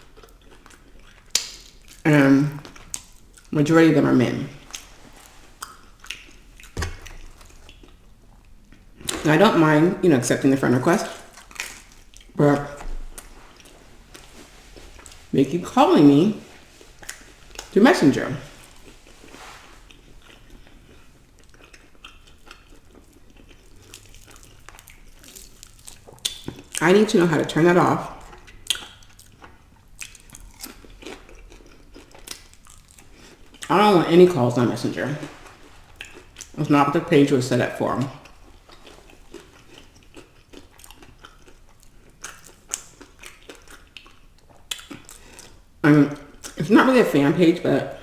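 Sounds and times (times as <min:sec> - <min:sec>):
person chewing food: 0:00.0 - 0:03.5, 0:04.5 - 0:09.3, 0:11.0 - 0:15.4, 0:16.4 - 0:17.8, 0:18.4 - 0:26.8, 0:28.1 - 0:33.7, 0:35.1 - 0:36.6, 0:38.0 - 0:46.6.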